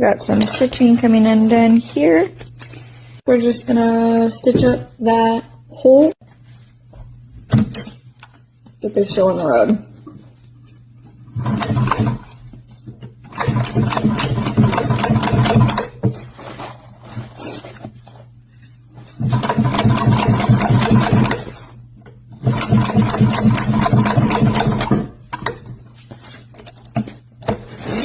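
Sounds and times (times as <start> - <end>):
sewing machine motor hum: 11.3 - 12.4, 13.3 - 16.0, 19.2 - 21.7, 22.4 - 25.1.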